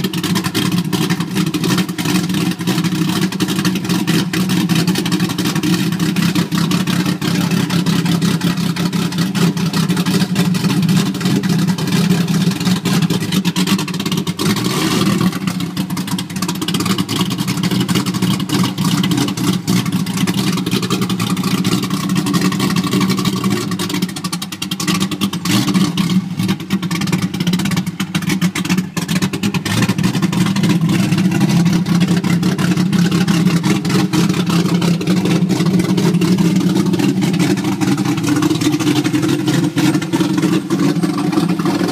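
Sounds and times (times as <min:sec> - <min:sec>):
car engine idling choppy: 0:00.0 - 0:41.9.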